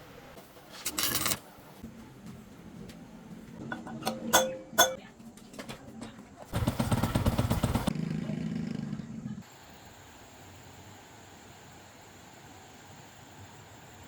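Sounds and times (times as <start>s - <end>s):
sharp metallic clinks: 3.8s - 5.0s
small motorcycle engine running: 6.5s - 9.6s.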